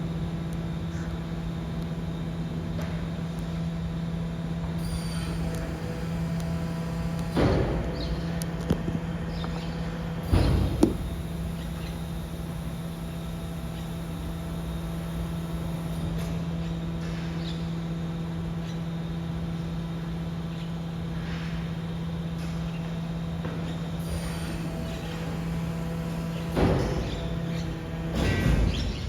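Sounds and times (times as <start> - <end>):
hydraulic pump hum: 0.0 - 29.0
compactor crunching: 4.8 - 17.5, 24.0 - 29.0.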